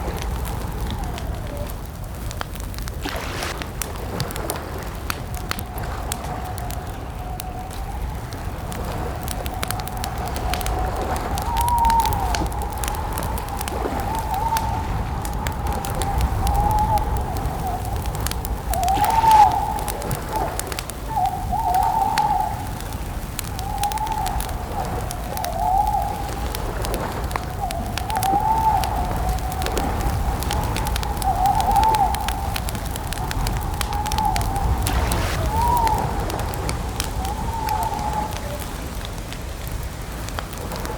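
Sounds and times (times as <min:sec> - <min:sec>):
campfire crackling: 0:00.0 - 0:40.9
owl hooting: 0:18.6 - 0:22.6, 0:30.7 - 0:38.9
steady low rumble: 0:32.2 - 0:40.9.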